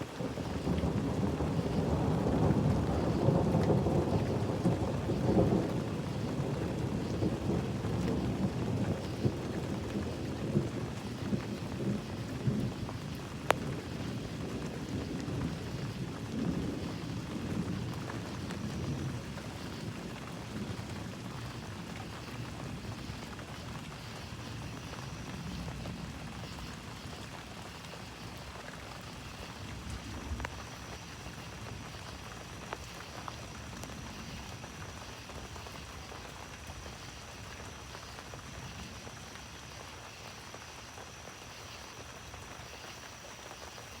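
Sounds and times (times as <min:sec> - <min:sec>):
low rumble of thunder: 0:00.0 - 0:44.0
steady rain falling: 0:00.0 - 0:44.0.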